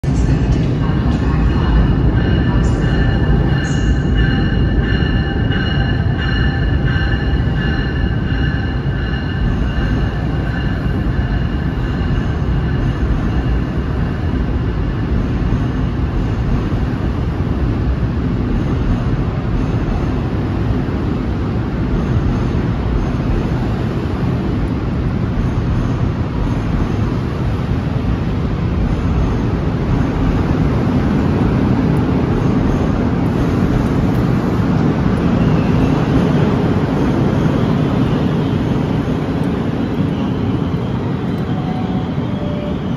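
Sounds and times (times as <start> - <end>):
train wheels rumbling on rails: 0.0 - 42.9.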